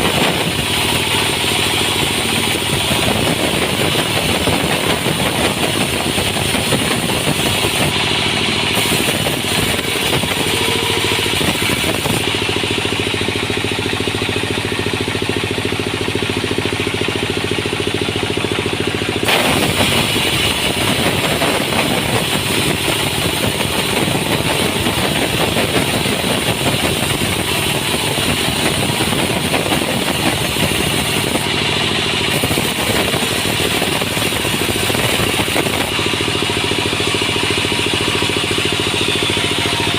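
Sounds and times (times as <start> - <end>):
hissing saw noise: 0.0 - 12.4, 19.2 - 31.5
sawmill engine hum: 0.0 - 39.9.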